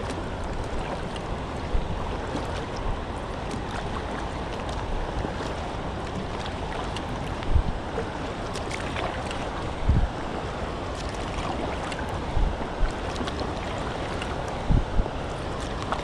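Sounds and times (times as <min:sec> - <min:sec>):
river water rushing and splashing: 0:00.0 - 0:16.0
wind thumps on microphone: 0:07.4 - 0:07.8, 0:09.6 - 0:10.2, 0:12.2 - 0:13.0, 0:14.6 - 0:15.2.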